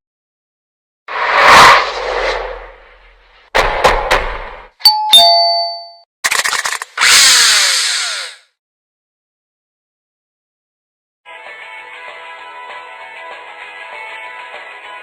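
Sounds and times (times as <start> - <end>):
noisy swoosh: 1.1 - 4.7
sharp clicks: 6.2 - 7.1.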